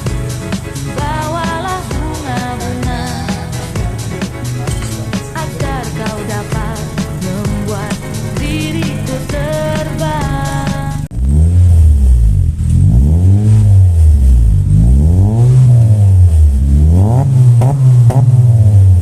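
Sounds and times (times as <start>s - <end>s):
music: 0.0s - 11.1s
car engine revving: 0.0s - 19.0s.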